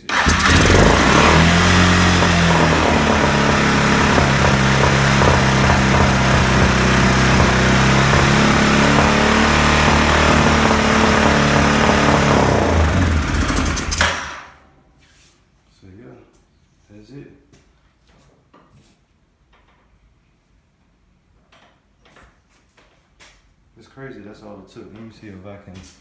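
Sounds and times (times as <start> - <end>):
atv engine running: 0.0 - 14.5.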